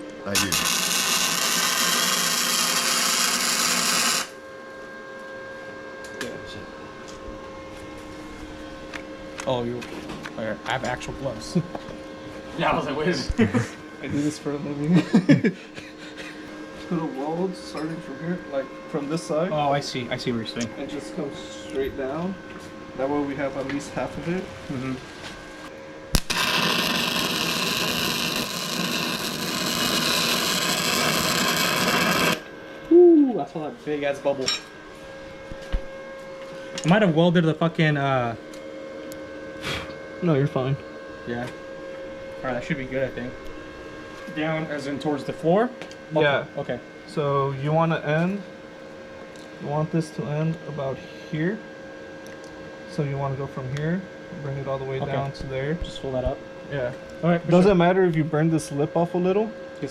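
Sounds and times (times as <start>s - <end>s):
arc welder crackling: 0.0s - 4.4s, 26.1s - 32.6s
shop tool hissing buzz: 0.4s - 4.4s, 26.2s - 32.5s.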